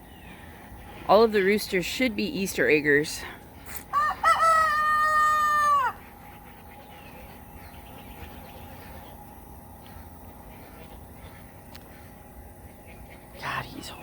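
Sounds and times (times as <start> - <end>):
rooster crowing: 3.9 - 6.0.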